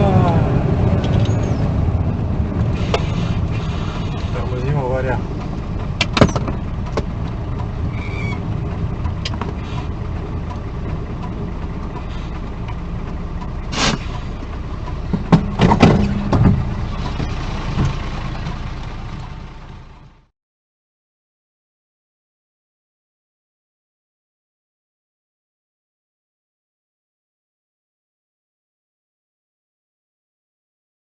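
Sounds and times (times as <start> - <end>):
vehicle running: 0.0 - 20.3
loud knocks and thumps: 6.0 - 7.2, 15.1 - 18.6.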